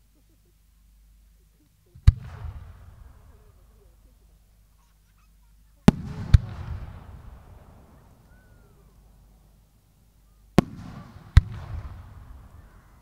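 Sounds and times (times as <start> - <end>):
firework bangs: 1.9 - 3.7, 5.9 - 8.8, 10.5 - 13.0
rumbling firework tail: 2.0 - 3.9, 5.9 - 8.8, 10.6 - 13.0.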